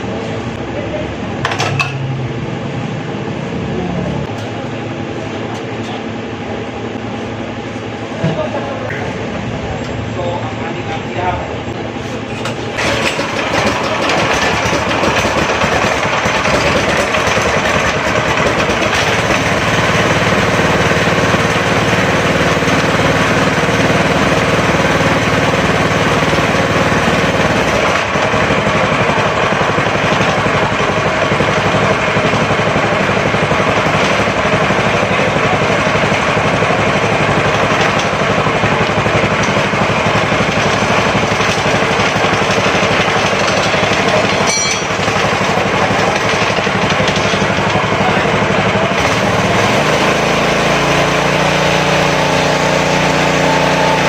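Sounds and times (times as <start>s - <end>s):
small gasoline engine running: 12.4s - 54.0s.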